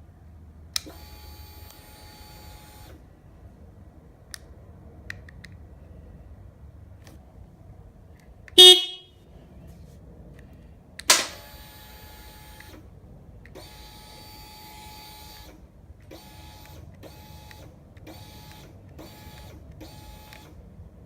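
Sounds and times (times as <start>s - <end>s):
small electric motor whirring: 13.6s - 20.6s.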